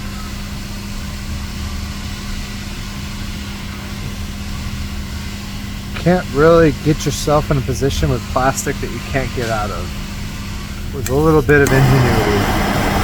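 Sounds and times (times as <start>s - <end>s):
hot-air plastic welder humming: 0.0s - 13.0s.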